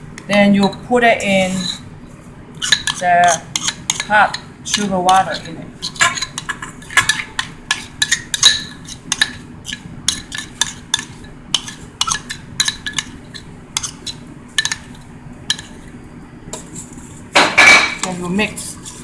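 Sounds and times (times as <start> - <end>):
utensil clinking against mixing bowl: 2.6 - 15.8.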